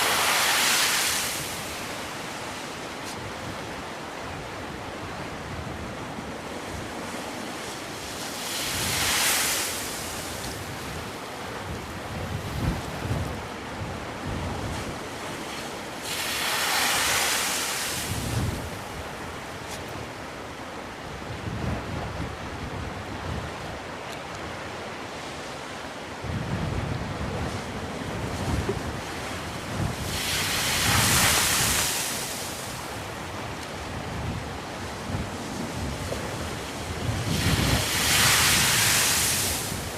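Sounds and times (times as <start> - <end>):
waves washing onto shore: 0.0 - 39.9
wind buffeting microphone: 10.1 - 15.5, 17.9 - 20.2, 21.1 - 23.9, 26.2 - 39.9.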